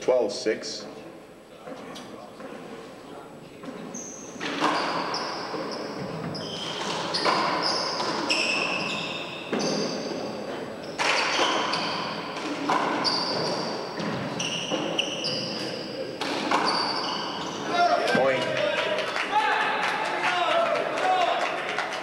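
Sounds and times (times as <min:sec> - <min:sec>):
sneaker squeaks: 0:03.6 - 0:18.2.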